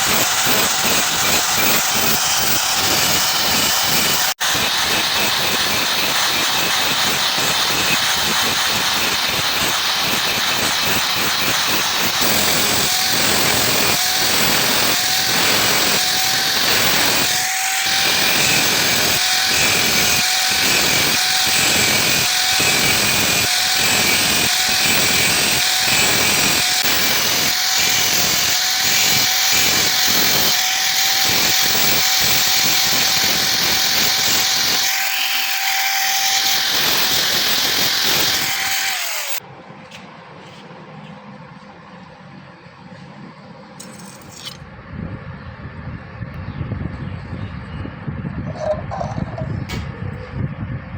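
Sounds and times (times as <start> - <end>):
power tool whining on metal: 0.0 - 39.4.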